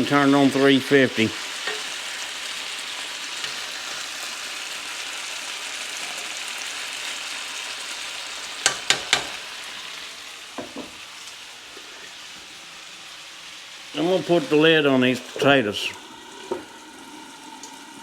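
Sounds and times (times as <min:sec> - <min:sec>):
potatoes sizzling in a skillet: 0:00.0 - 0:18.0
soft knocks: 0:10.6 - 0:11.0.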